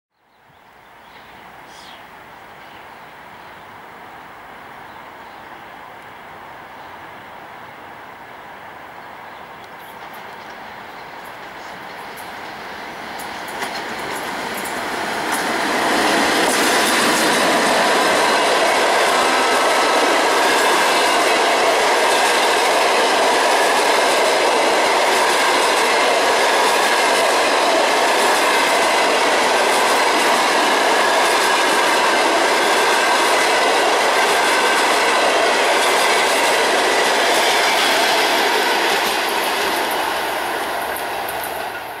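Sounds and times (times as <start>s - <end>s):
train wheels on rails: 9.6s - 42.0s.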